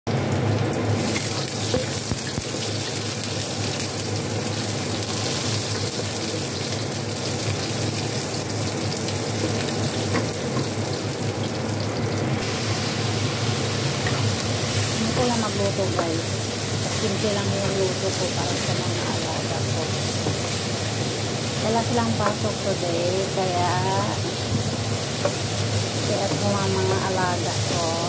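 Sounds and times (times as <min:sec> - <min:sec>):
food sizzling in hot oil: 0:00.1 - 0:28.0.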